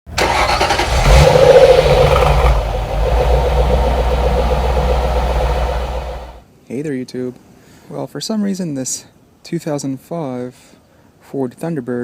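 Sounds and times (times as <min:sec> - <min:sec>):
car engine idling: 0:00.0 - 0:06.4.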